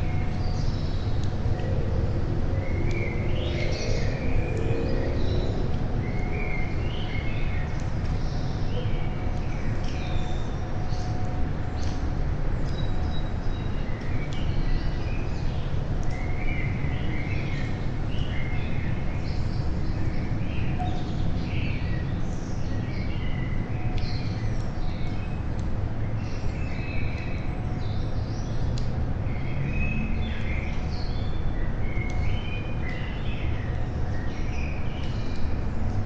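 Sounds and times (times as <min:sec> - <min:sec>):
steady low rumble: 0:00.0 - 0:09.8
songbirds chirping: 0:00.0 - 0:36.0.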